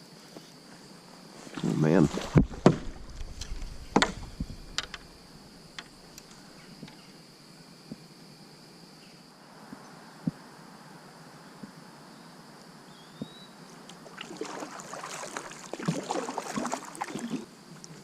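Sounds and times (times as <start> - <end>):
insects trilling: 0.0 - 18.0
sharp knocks and clatters: 2.2 - 5.1
faint clicks: 3.1 - 5.1.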